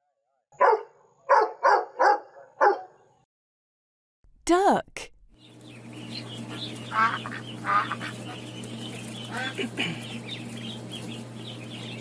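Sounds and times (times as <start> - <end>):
low steady hum: 4.5 - 12.0
ducks quacking: 5.9 - 11.1.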